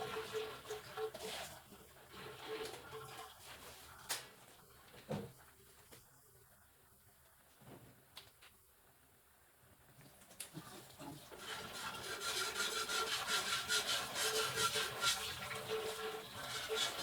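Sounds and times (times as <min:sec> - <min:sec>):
rapid scraping strokes: 0:11.4 - 0:17.0.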